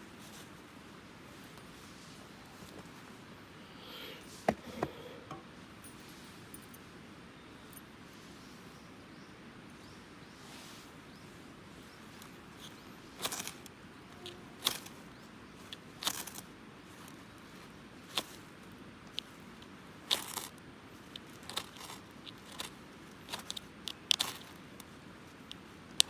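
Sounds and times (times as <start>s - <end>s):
faint background noise: 0.0s - 26.0s.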